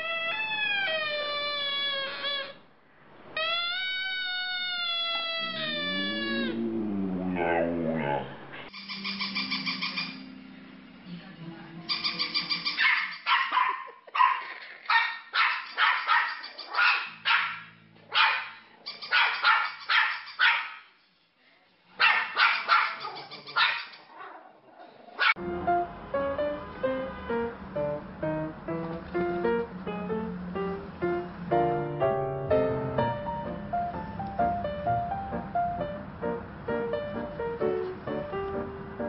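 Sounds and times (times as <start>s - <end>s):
small dog yipping: 0.0s - 2.6s, 3.4s - 6.3s, 11.9s - 17.6s, 18.2s - 20.8s, 22.0s - 24.4s.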